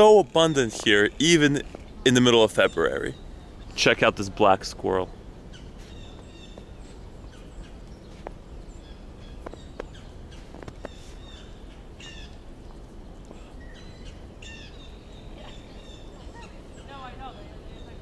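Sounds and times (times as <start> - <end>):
low background noise: 0.0 - 18.0
small birds chirping: 0.0 - 18.0.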